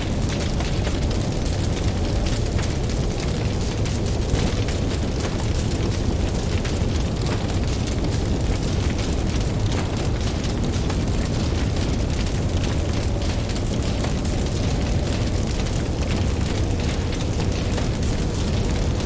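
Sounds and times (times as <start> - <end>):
campfire crackling and popping: 0.0 - 19.0
deep rumble: 0.0 - 19.0.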